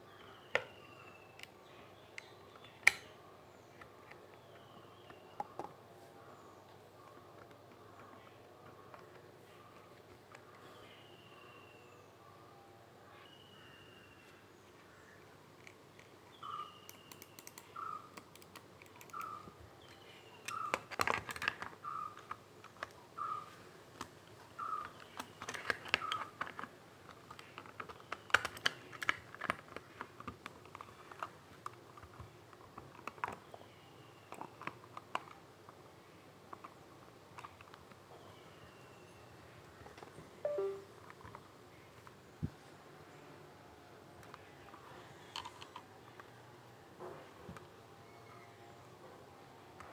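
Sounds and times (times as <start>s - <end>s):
computer keys clicking: 16.8s - 19.4s, 40.5s - 40.8s.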